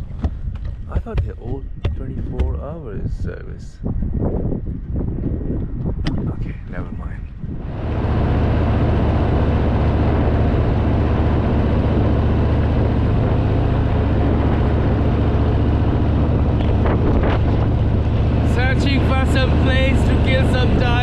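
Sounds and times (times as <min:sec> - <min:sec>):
wind rush: 0:00.0 - 0:21.0
road noise: 0:06.2 - 0:21.0
motorcycle engine running: 0:07.6 - 0:21.0.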